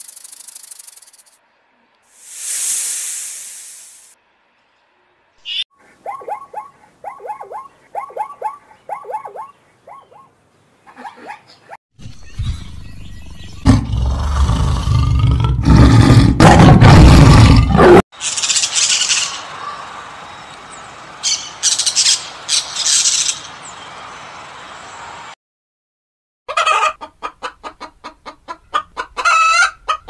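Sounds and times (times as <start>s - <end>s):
birds chirping: 5.4s - 14.9s.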